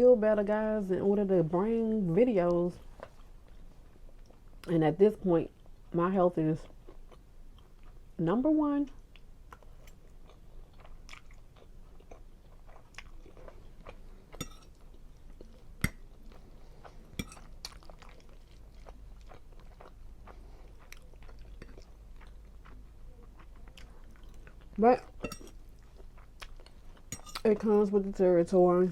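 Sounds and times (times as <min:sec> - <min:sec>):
chewing with wet mouth clicks: 0:09.0 - 0:27.5.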